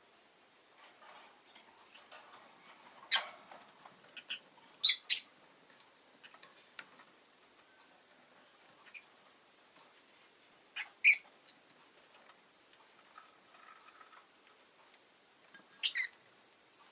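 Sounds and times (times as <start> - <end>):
lovebird sharp high chirps: 4.2 - 5.3, 10.8 - 11.3, 15.8 - 16.1.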